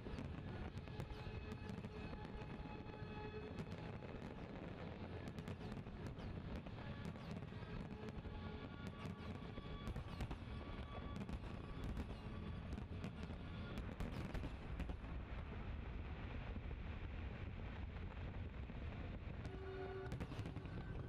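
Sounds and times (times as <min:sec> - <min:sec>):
low continuous rumble: 0:15.0 - 0:21.0.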